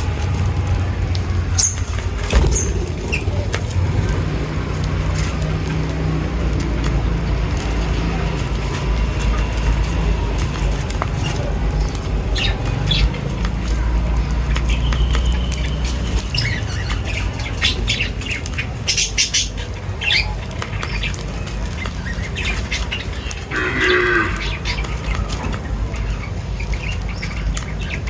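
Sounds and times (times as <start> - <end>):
birds chirping and squawking: 0.0 - 5.8, 7.6 - 28.0
steady low rumble: 0.0 - 13.6
harsh buzzy bird call: 23.5 - 24.8.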